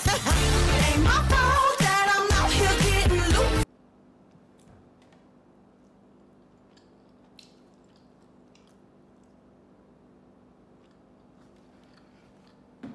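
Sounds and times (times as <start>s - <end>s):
low steady hum: 3.6s - 12.9s
faint chewing: 4.3s - 12.8s.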